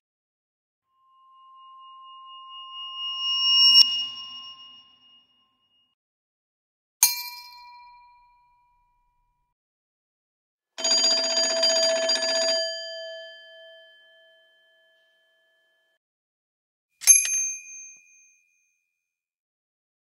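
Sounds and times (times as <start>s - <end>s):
higher-pitched bell struck: 0.9s - 6.0s
bell ringing in rapid trill: 1.0s - 5.4s.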